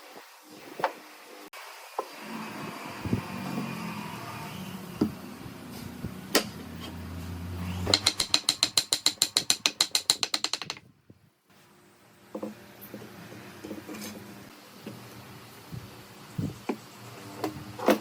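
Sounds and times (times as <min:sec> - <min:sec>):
ratchet clicking rapidly: 0:07.8 - 0:10.8.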